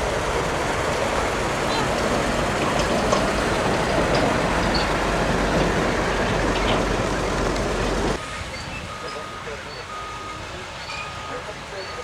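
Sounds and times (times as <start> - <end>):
aircraft engine roar: 0.0 - 8.2.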